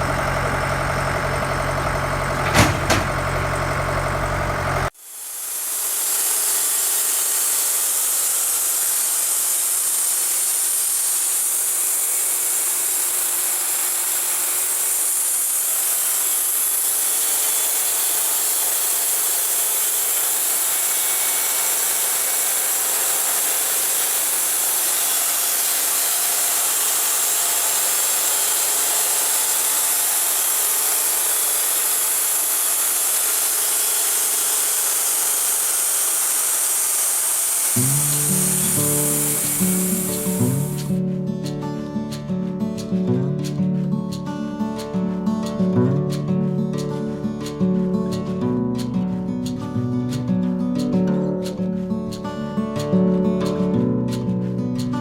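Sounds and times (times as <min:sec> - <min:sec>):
band saw cutting log: 0:00.0 - 0:55.0.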